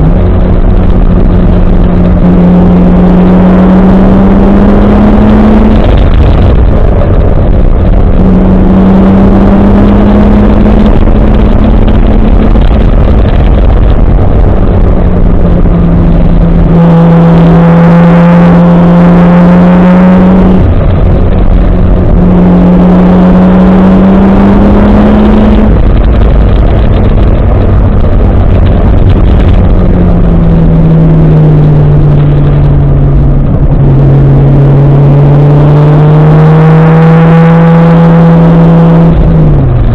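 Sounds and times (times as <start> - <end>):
car engine accelerating through gears: 0.0 - 39.9.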